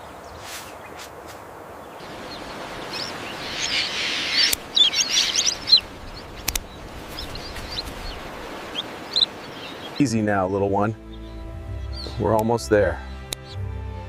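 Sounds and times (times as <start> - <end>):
small birds chirping: 0.0 - 13.6
sharp clicks: 6.4 - 7.4.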